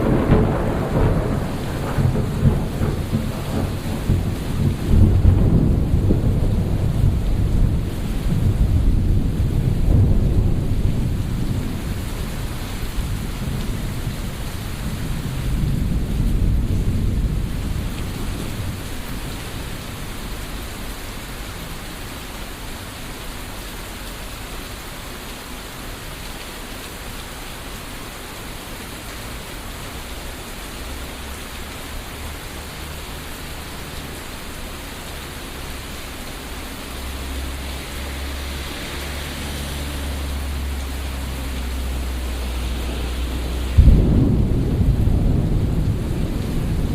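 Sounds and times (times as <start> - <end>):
rolling thunder: 0.0 - 20.9, 41.9 - 46.9
steady rain falling: 0.0 - 46.9.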